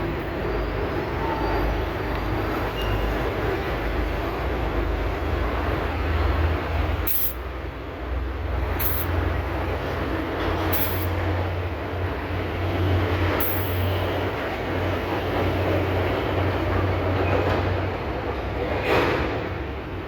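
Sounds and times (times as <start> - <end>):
continuous noisy rush: 0.0 - 20.0
short high hisses: 7.1 - 7.4, 8.8 - 9.1, 10.7 - 11.1.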